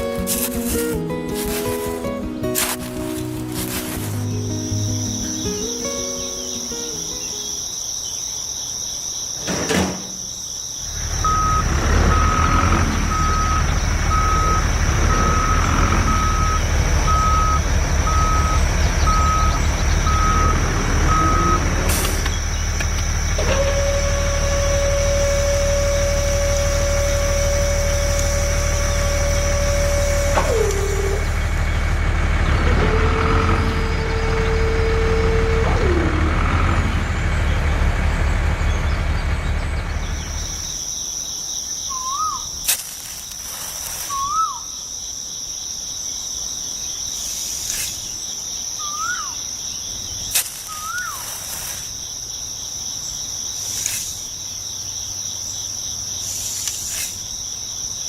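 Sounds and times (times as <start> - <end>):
vehicle engine running: 0.0 - 7.5, 10.8 - 40.8
reversing beeper: 11.1 - 22.3, 23.4 - 31.7
long horn-like tones: 23.4 - 31.6, 32.6 - 36.7.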